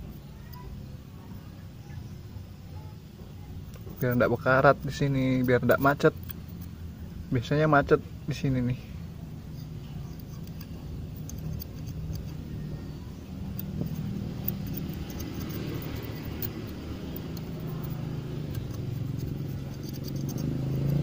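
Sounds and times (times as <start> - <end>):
low engine hum: 0.0 - 21.0
light metallic clicks: 9.8 - 21.0.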